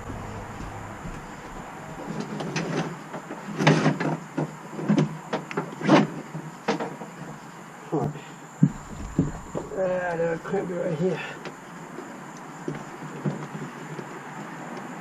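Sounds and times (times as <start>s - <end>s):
short knocks: 0.0s - 2.3s, 8.6s - 9.9s
cables scraping and rubbing: 8.7s - 10.2s.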